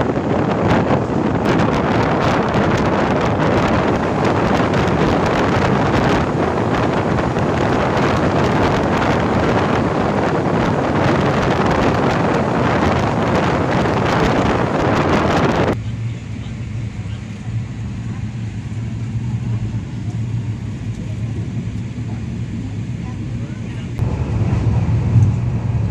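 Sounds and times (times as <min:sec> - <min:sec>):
moving train rumble: 0:00.0 - 0:25.9
wind buffeting microphone: 0:00.0 - 0:25.9.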